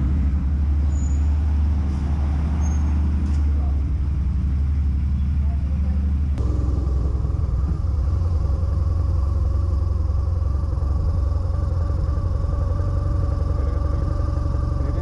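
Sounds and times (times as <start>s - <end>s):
motorcycle engine rumble: 0.0s - 15.0s
faint steady whine: 6.4s - 15.0s.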